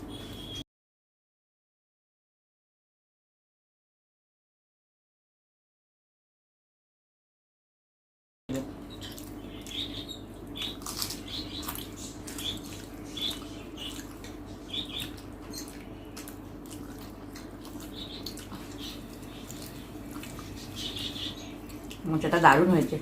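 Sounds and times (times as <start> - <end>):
steady low hum: 8.5 - 23.0
people chewing with wet smacks: 8.7 - 22.9.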